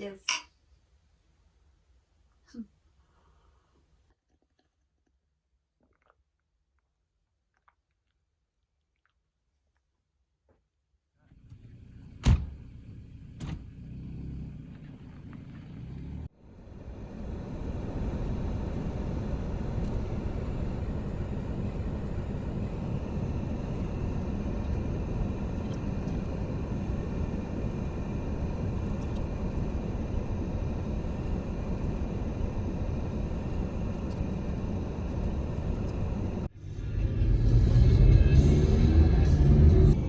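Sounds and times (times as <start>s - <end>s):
car road noise: 11.4s - 40.0s.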